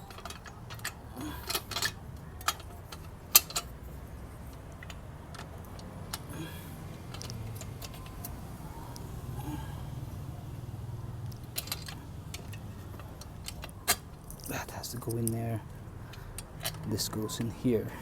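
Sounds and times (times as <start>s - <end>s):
metal clicks and clinks: 0.0s - 3.8s, 7.0s - 8.4s, 11.2s - 15.5s, 16.1s - 17.5s.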